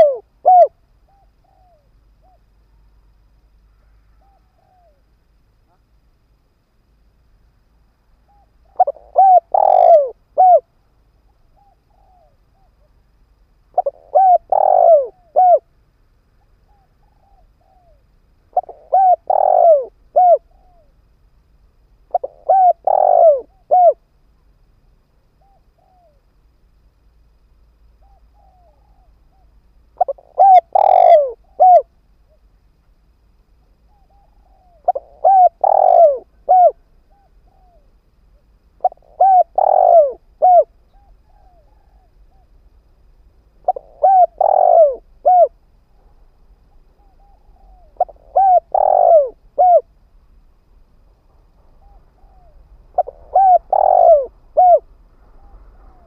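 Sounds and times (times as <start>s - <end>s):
dove cooing: 0.0s - 2.5s, 8.2s - 10.7s, 11.5s - 12.9s, 13.7s - 15.7s, 16.7s - 20.9s, 22.1s - 24.0s, 25.4s - 26.2s, 28.0s - 31.9s, 33.9s - 37.9s, 38.8s - 42.5s, 43.6s - 45.6s, 46.9s - 49.9s, 51.7s - 56.0s.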